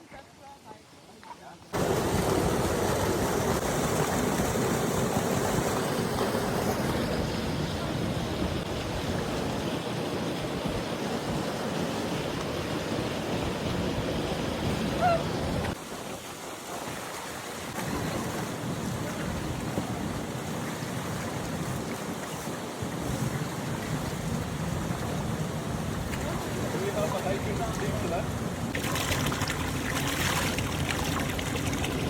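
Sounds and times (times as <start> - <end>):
wind buffeting microphone: 17.7 - 32.0.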